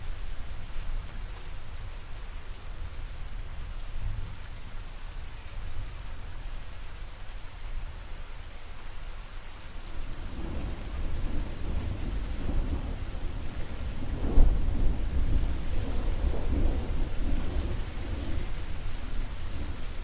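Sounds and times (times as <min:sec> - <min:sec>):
steady rain: 0:00.0 - 0:20.0
rolling thunder: 0:10.1 - 0:20.0.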